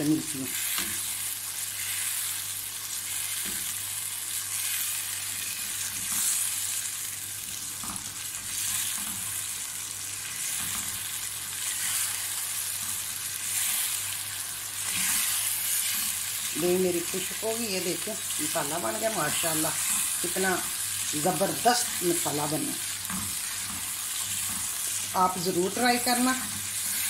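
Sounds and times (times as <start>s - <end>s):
masala sizzling in oil: 0.0s - 27.0s
spatula stirring: 11.5s - 17.4s.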